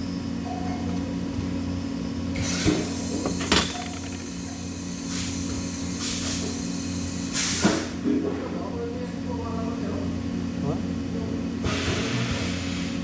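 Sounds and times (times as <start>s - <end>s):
machine hum: 1.1s - 5.1s.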